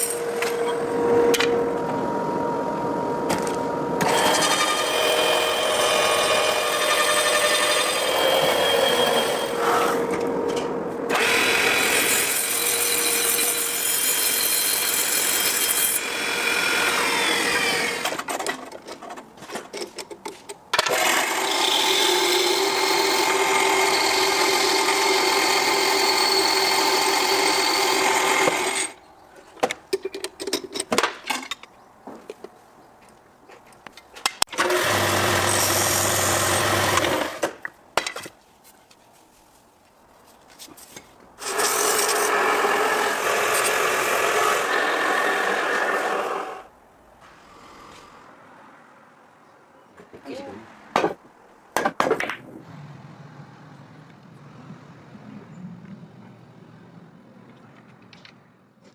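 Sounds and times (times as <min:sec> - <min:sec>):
power tool running: 0:03.3 - 0:10.0, 0:11.1 - 0:13.4.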